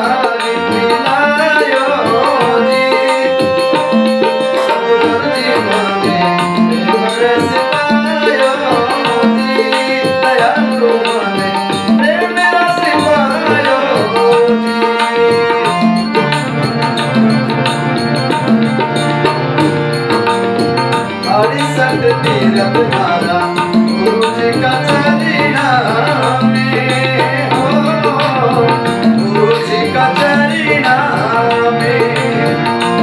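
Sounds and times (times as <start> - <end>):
hand drums rhythm: 0.0 - 33.0
melody in held notes: 0.0 - 33.0.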